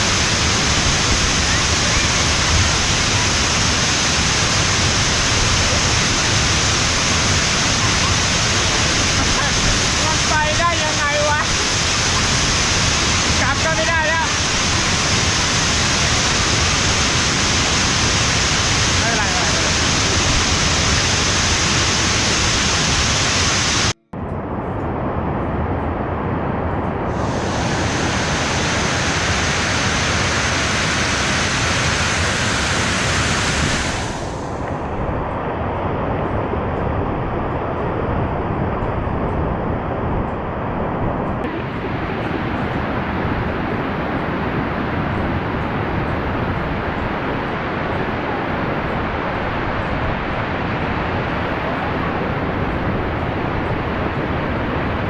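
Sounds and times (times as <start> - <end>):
waterfall rushing: 0.0 - 24.0, 27.1 - 34.6, 41.4 - 55.0.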